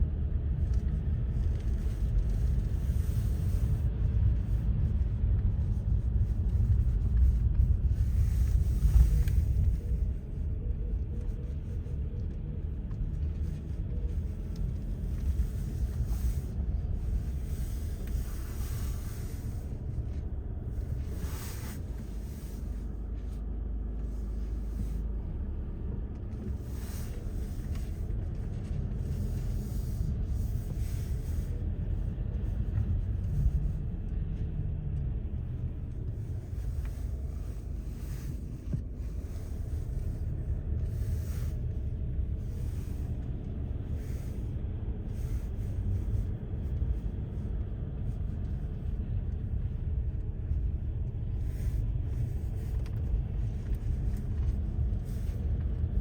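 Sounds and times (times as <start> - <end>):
low rumble: 0.0 - 56.0.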